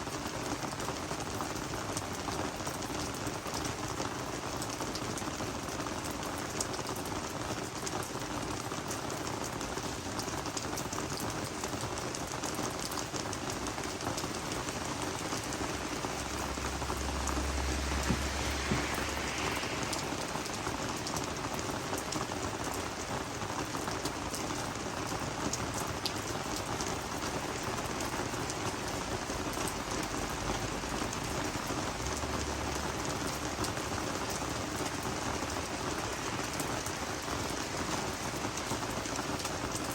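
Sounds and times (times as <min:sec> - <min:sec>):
rain falling on plants: 0:00.0 - 0:39.9
raindrops ticking: 0:01.3 - 0:39.9
low rumble: 0:14.2 - 0:22.0.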